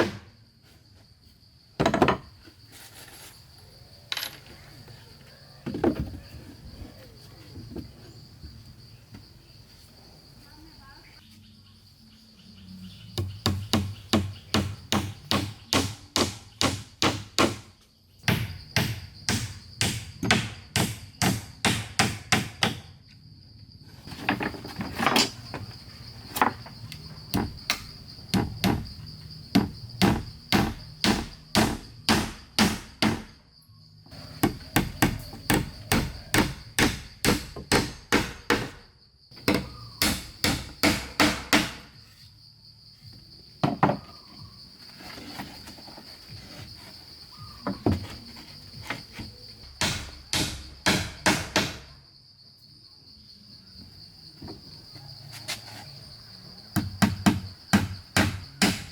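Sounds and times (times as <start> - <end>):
crickets chirring: 0.0 - 58.9
hammer striking wood: 13.2 - 17.7, 18.3 - 22.9, 27.3 - 28.9, 29.5 - 33.3, 34.4 - 38.8, 39.4 - 41.9, 49.8 - 51.9, 56.8 - 58.9.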